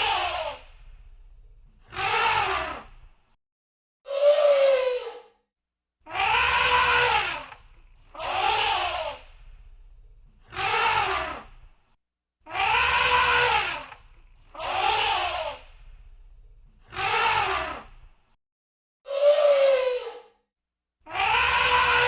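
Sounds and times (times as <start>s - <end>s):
elephant trumpeting: 6.1s - 7.6s, 12.5s - 14.0s.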